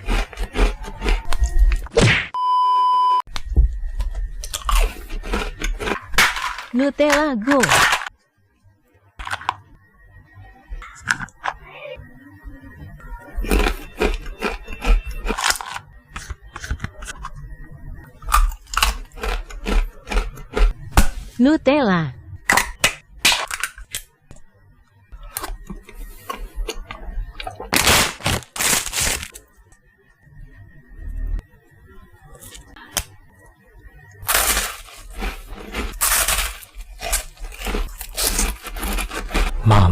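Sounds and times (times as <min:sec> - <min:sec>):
crunching chews: 0:00.0 - 0:01.8, 0:04.0 - 0:06.2, 0:13.4 - 0:16.3, 0:18.2 - 0:20.8, 0:34.2 - 0:39.7.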